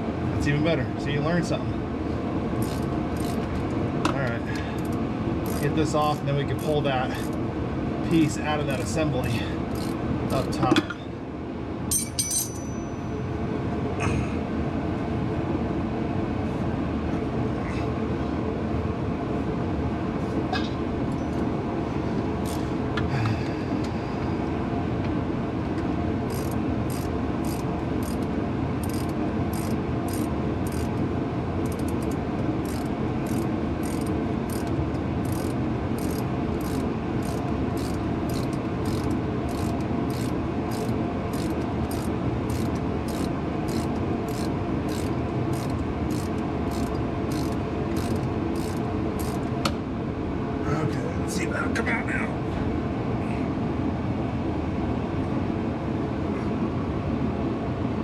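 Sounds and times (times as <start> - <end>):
loud background rumble: 0.0 - 58.0
hand ratchet clicking: 2.6 - 3.5, 4.8 - 5.7, 9.7 - 10.5, 22.4 - 22.6, 26.3 - 30.9, 31.6 - 49.5.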